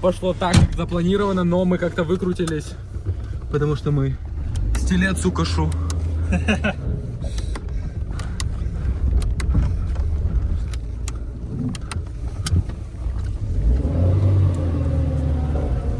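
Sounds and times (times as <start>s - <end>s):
car engine and road noise: 0.0s - 15.9s.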